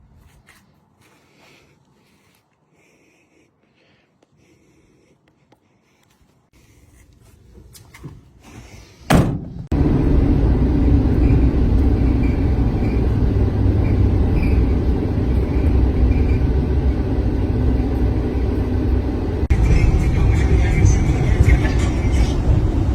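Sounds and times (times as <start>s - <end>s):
van door slamming: 9.1s - 9.7s
low vehicle engine rumble: 9.6s - 22.9s.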